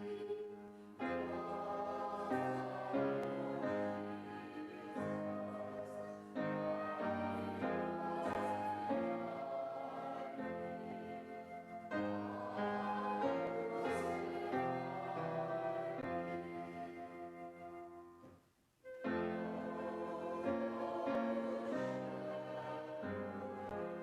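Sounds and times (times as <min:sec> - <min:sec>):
voices singing church music: 0:00.0 - 0:18.2, 0:18.9 - 0:24.0.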